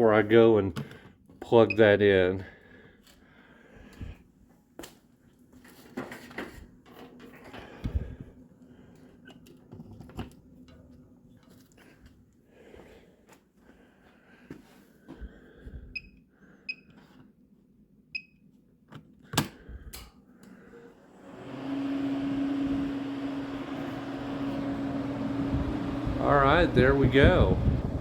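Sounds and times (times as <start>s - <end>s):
heater fan motor humming: 20.6s - 28.0s.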